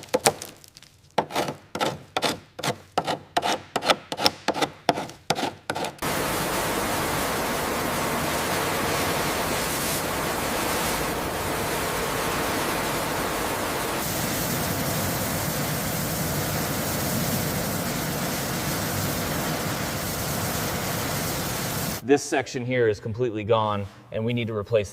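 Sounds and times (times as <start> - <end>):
steady even hiss: 6.0 - 22.3.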